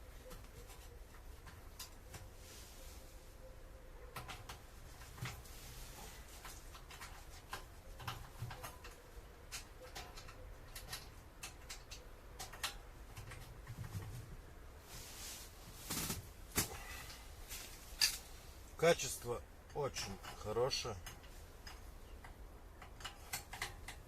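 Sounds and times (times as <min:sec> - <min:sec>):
metal stove parts clicking and knocking: 0:06.4 - 0:14.0, 0:19.6 - 0:24.0.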